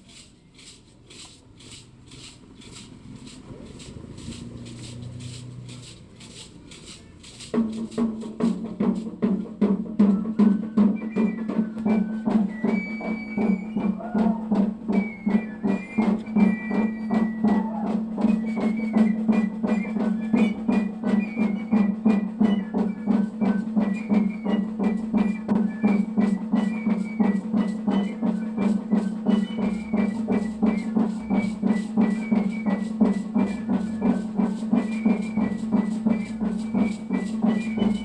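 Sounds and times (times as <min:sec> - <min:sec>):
drum beating steady rhythm: 0:00.0 - 0:38.0.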